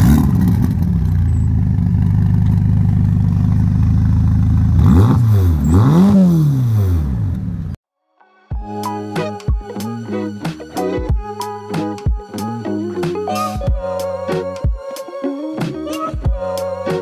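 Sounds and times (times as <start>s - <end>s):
car engine high idle: 0.4s - 4.8s
engine revving blips: 4.4s - 7.8s.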